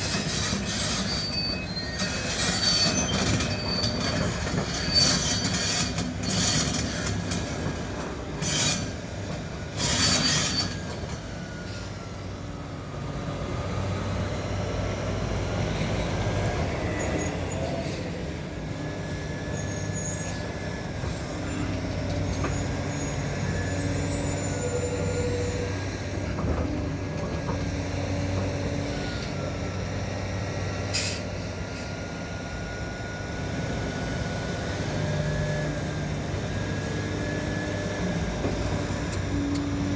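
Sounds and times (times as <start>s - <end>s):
metallic squealing and scraping: 0.0s - 7.1s, 8.4s - 9.0s, 9.8s - 10.9s, 15.8s - 26.4s.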